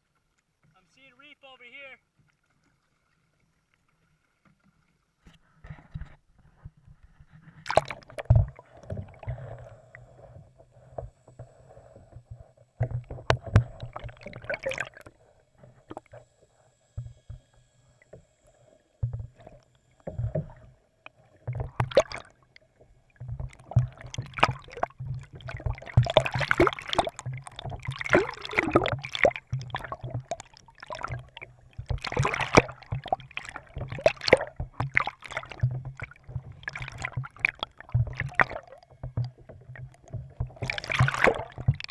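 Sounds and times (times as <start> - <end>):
kayak paddle splashes and knocks: 7.6 - 9.6, 12.4 - 15.1, 19.0 - 41.9.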